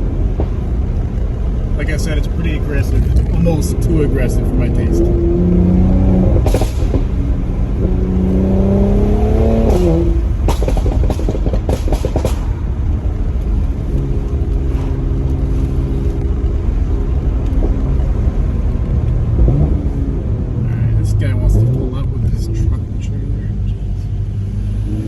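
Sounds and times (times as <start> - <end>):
car engine revving: 0.0 - 25.0
exhaust pops and bangs: 6.3 - 15.0.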